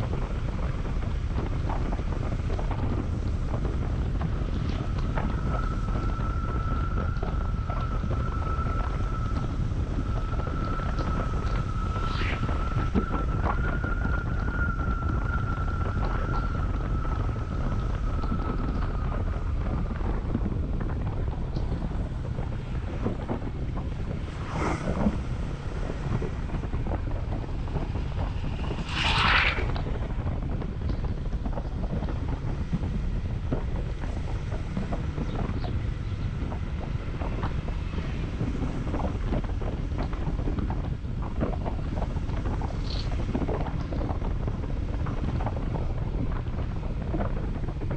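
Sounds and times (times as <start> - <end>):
wind rushing over microphone: 0.0 - 47.9
thin whine: 3.0 - 21.8, 22.7 - 31.6.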